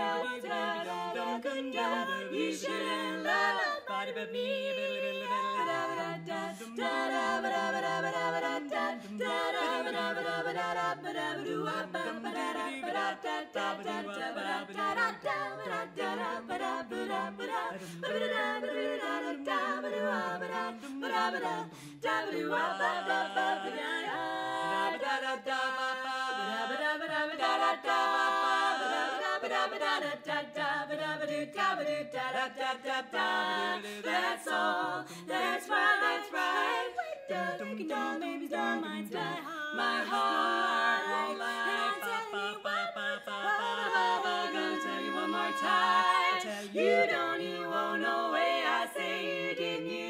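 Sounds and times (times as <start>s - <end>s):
women singing a cappella harmony: 0.0s - 50.0s.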